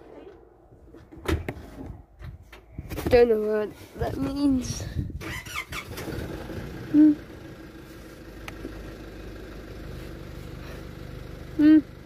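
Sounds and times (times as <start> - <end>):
car engine idling: 5.7 - 12.0.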